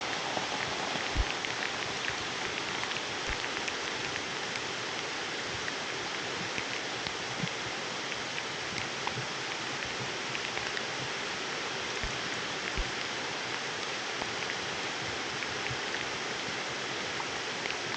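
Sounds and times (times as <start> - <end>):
raindrops ticking: 0.0 - 11.2, 11.9 - 16.5
heavy rain falling: 0.0 - 17.9.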